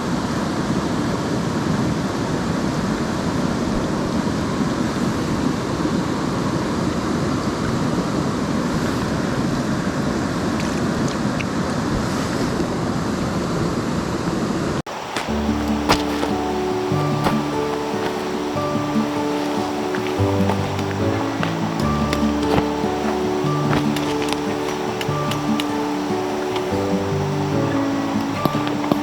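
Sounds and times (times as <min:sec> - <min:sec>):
stream rushing: 0:12.6 - 0:29.0.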